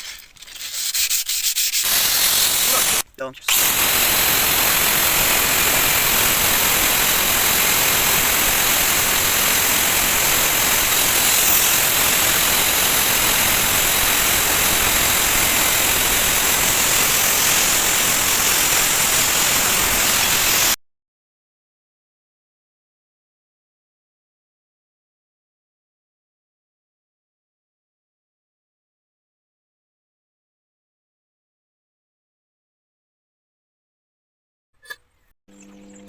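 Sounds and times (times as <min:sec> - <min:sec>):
sanding hiss on steel blade: 0:00.0 - 0:20.8.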